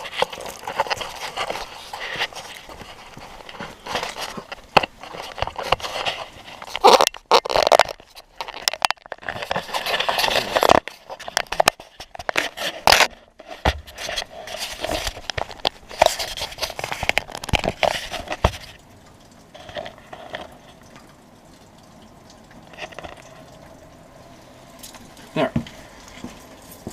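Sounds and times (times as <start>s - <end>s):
camera being bumped and handled: 0.0s - 18.7s.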